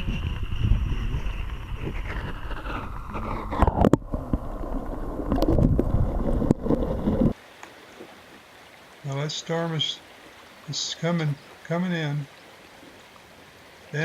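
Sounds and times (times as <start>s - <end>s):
wind buffeting microphone: 0.0s - 7.4s
stream water flowing: 2.1s - 14.0s.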